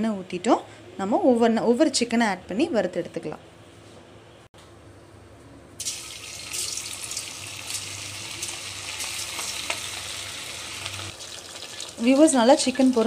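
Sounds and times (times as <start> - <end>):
food sizzling in hot oil: 5.8 - 13.0.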